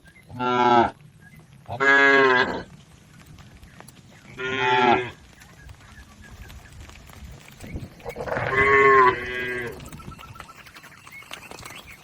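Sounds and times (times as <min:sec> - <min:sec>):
cattle mooing: 0:04.4 - 0:05.2, 0:08.1 - 0:09.9.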